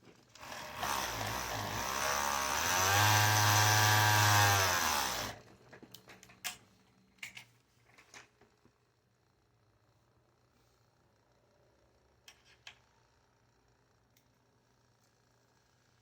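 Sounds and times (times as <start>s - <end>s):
motor running: 0.4s - 5.4s.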